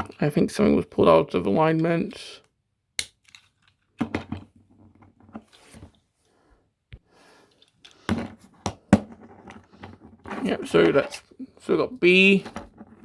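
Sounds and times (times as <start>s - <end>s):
plastic toy parts clicking: 3.0s - 4.0s.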